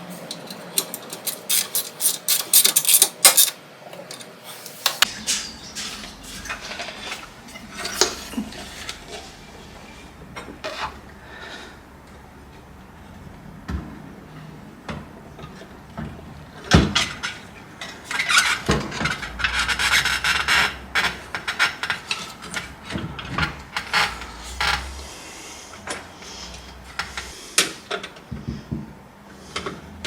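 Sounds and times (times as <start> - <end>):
hand tool rasping and scraping: 5.0 - 9.4, 19.2 - 27.4.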